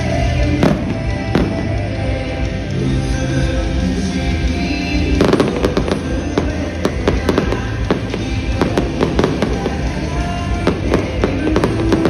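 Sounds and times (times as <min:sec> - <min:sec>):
music playing: 0:00.0 - 0:12.0
fireworks bangs and crackles: 0:00.2 - 0:02.2, 0:04.8 - 0:12.0.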